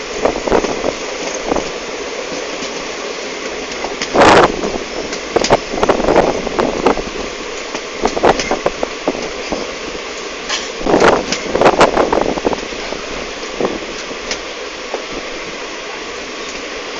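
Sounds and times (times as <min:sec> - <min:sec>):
train running noise: 0:00.0 - 0:16.9
wind rushing: 0:04.1 - 0:09.2.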